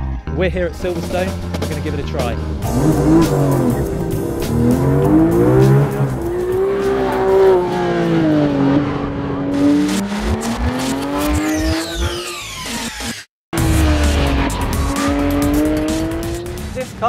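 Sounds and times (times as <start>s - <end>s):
car engine revving hard: 2.6s - 12.5s, 13.6s - 16.8s.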